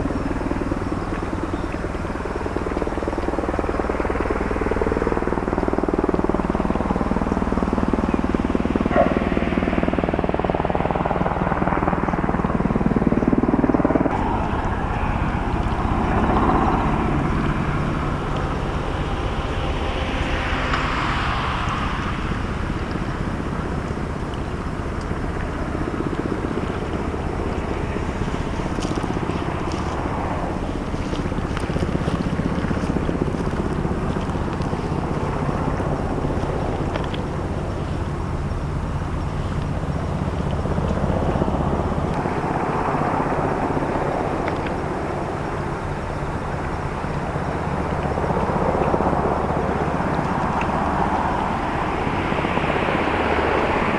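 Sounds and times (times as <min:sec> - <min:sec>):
ship engine droning: 0:00.0 - 0:53.9
wind noise on microphone: 0:00.0 - 0:53.9.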